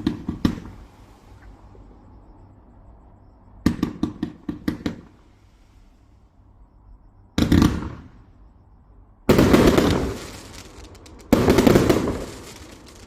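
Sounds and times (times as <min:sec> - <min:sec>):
firework bursts: 0:00.0 - 0:01.5, 0:07.4 - 0:08.3, 0:09.3 - 0:13.0
firework crackles: 0:09.3 - 0:13.0.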